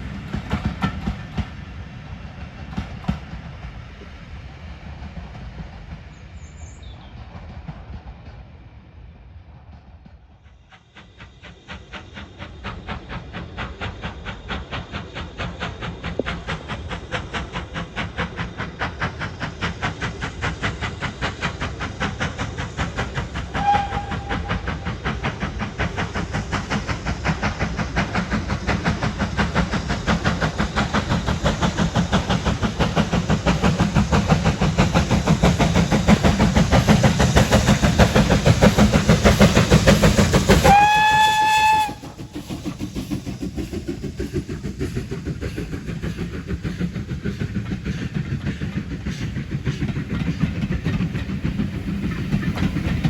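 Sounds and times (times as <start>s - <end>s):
steam locomotive chuffing: 0.0s - 53.0s
steam whistle: 23.5s - 24.7s, 40.6s - 42.2s.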